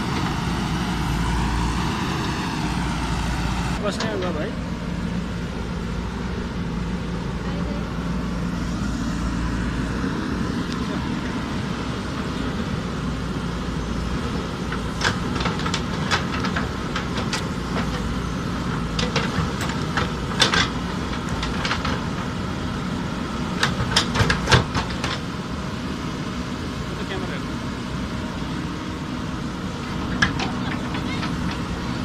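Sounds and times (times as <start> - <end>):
diesel engine running: 0.0 - 32.0
sharp knocks and clanks: 14.7 - 22.3, 23.6 - 25.2.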